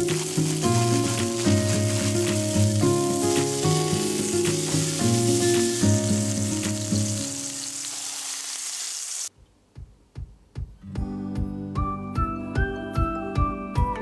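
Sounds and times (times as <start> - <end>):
burger patties sizzling in pan: 0.0 - 9.3.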